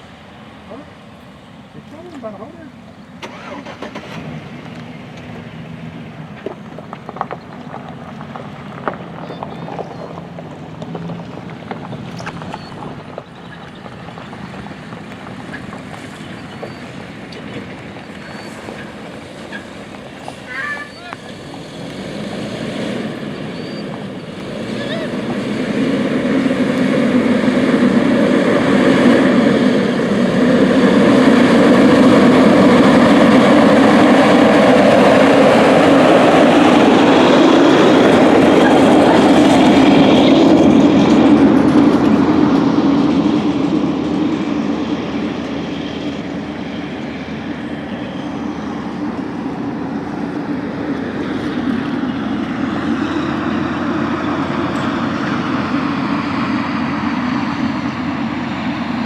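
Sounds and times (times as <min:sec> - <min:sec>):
diesel harvester passing: 0:00.0 - 0:59.0.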